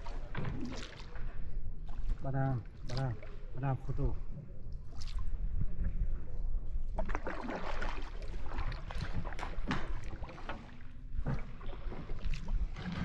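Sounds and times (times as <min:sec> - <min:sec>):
water splashes: 0:00.0 - 0:06.1, 0:06.9 - 0:13.0
boat knocks: 0:08.9 - 0:13.0.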